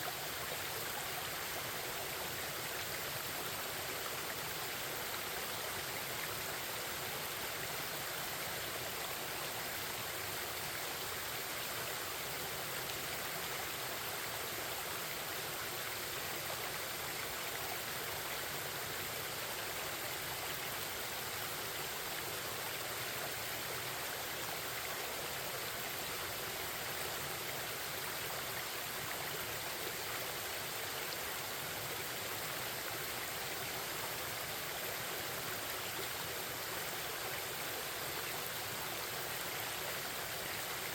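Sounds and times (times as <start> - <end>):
stream water flowing over rocks: 0.0 - 40.9.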